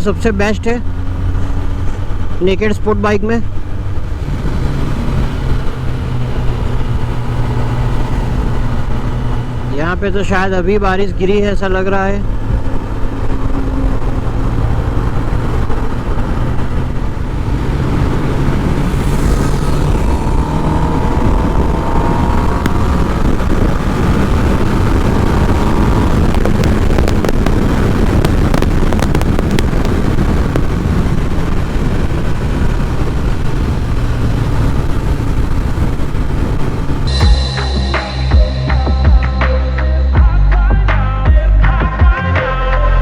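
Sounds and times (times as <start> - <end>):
motorcycle engines droning: 0.0 - 42.1
road noise: 0.0 - 43.0
wind rushing: 12.2 - 40.0.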